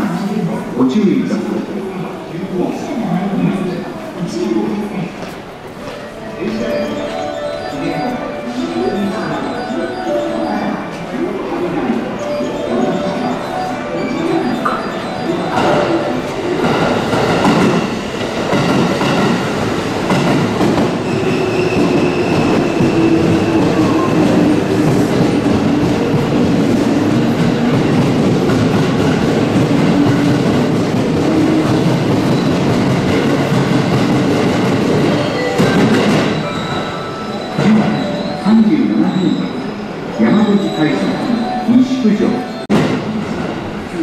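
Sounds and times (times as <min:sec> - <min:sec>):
train wheels rumbling on rails: 0:15.5 - 0:36.9.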